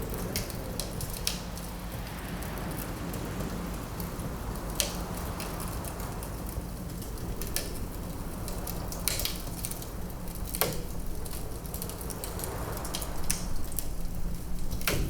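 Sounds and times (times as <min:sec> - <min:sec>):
low rush of wind: 0:00.0 - 0:15.0
wood fire crackling: 0:00.0 - 0:15.0
fire popping: 0:07.0 - 0:15.0.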